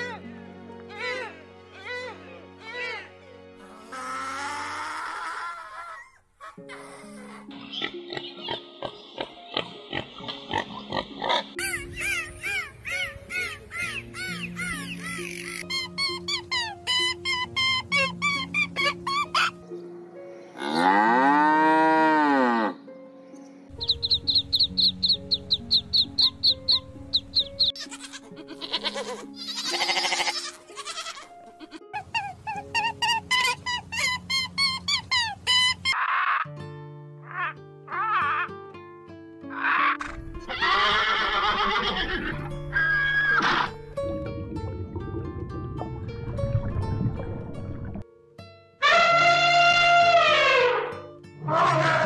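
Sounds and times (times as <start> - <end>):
background music: 0.0 - 5.4, 6.2 - 52.0
pigs grunting: 7.8 - 11.6
high-pitched animal calls: 9.9 - 19.6, 31.9 - 36.5, 39.5 - 43.8.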